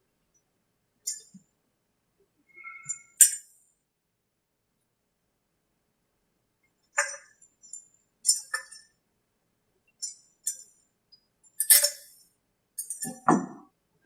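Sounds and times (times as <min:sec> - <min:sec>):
metal tools clinking and tapping: 0:02.8 - 0:03.5, 0:07.0 - 0:08.9, 0:11.5 - 0:12.2, 0:12.8 - 0:13.5.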